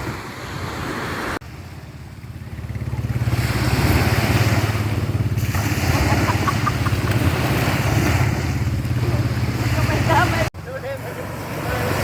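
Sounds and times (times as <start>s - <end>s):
boat engine droning: 0.7s - 12.0s
water rushing hiss: 3.2s - 10.4s.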